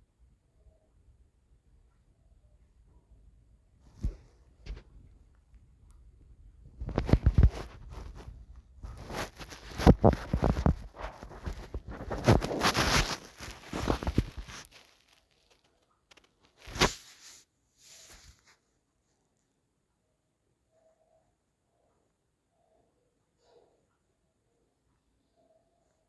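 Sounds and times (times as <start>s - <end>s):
rustling crinkling and tearing: 6.8s - 18.6s.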